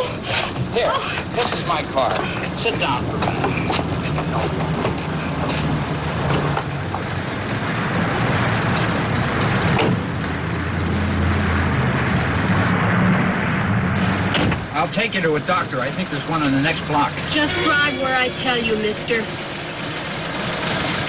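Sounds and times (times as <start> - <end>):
car engine hum: 0.0 - 21.0.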